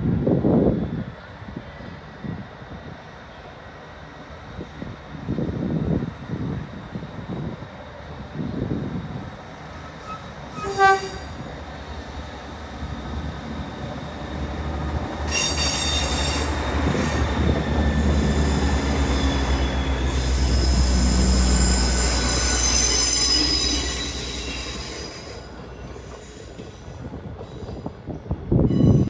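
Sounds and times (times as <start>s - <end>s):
train rumble: 0.0s - 29.0s
train wheels squealing: 9.8s - 11.5s, 15.2s - 29.0s.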